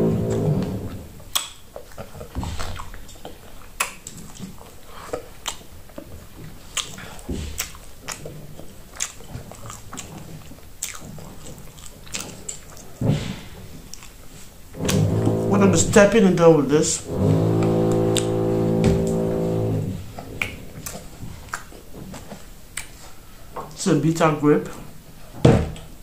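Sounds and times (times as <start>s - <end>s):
wet chewing with lip smacks: 1.2s - 13.0s.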